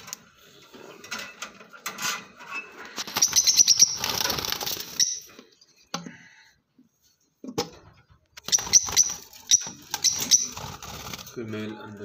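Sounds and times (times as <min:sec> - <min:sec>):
high bird chirps: 0:03.0 - 0:05.3, 0:08.4 - 0:10.8
bird wings flapping: 0:10.5 - 0:11.4.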